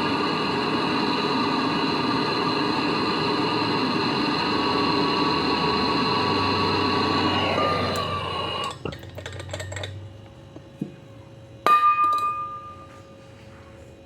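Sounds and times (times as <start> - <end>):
mechanical running sound: 0.0 - 9.8.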